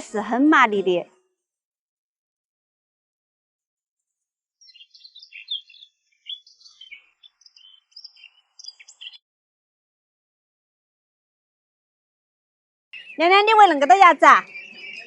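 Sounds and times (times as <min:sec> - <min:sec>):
songbird chirping and whistling: 0:04.6 - 0:09.2, 0:13.0 - 0:15.0.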